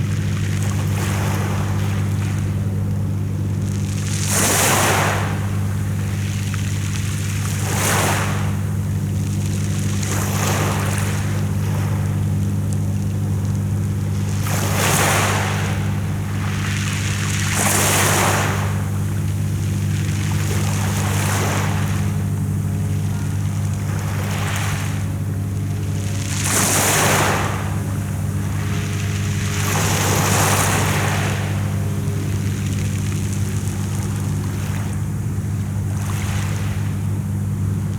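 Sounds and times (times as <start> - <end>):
sea waves washing ashore: 0.0 - 37.9
low hum: 8.4 - 37.9.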